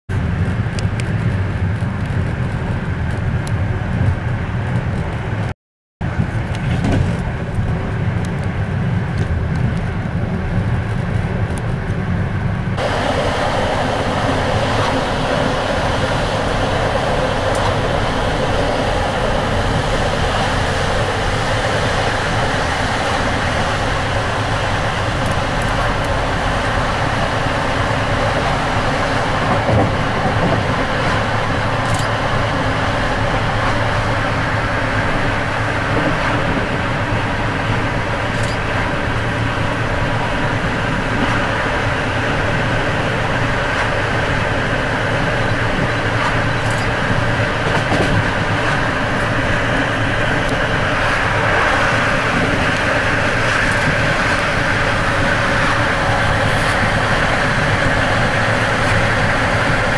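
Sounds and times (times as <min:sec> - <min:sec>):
train running rumble: 0:00.1 - 0:59.9.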